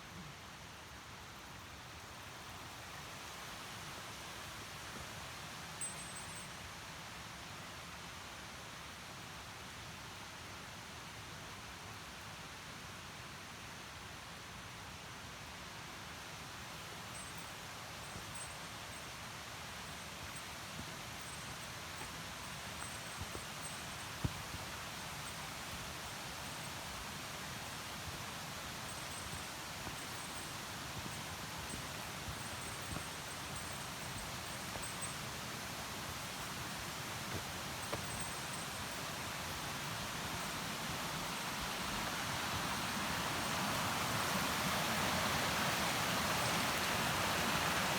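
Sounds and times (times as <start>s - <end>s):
stream rushing over rocks: 19.8s - 47.9s.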